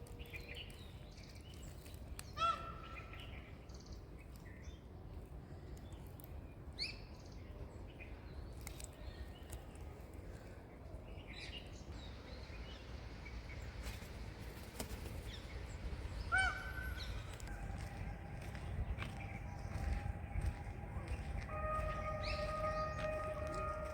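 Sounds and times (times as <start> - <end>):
birds chirping: 6.8 - 23.9
low rumble: 11.9 - 23.9.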